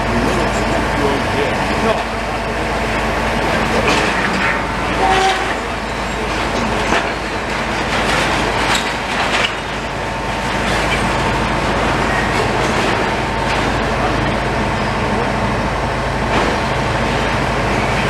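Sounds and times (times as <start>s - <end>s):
heavy engine running: 0.0s - 18.0s
sharp knocks and clanks: 3.5s - 14.3s, 16.3s - 17.3s.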